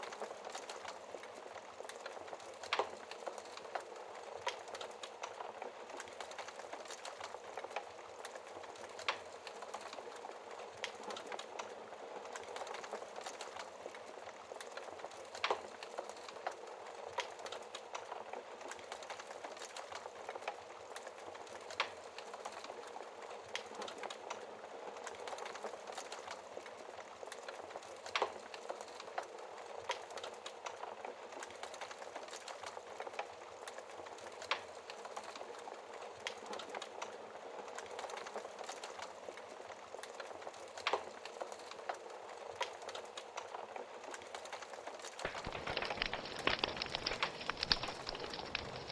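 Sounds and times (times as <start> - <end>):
fire crackling: 0.0 - 48.9
fire popping: 0.1 - 48.9.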